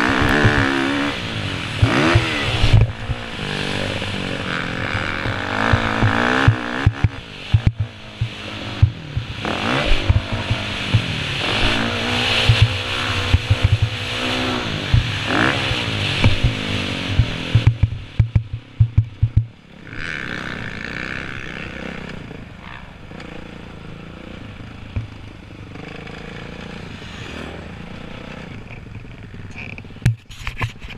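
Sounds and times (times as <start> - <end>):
dirt bike engine revving: 0.0 - 30.1
quiet steady engine: 0.0 - 30.9
low thumps: 1.8 - 19.6.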